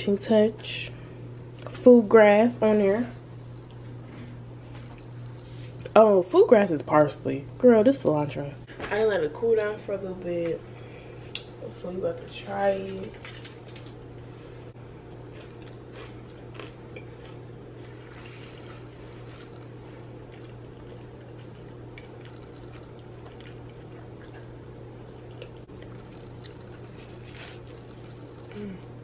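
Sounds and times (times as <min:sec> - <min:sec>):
low background hum: 0:00.0 - 0:29.0
person chewing: 0:15.1 - 0:28.8.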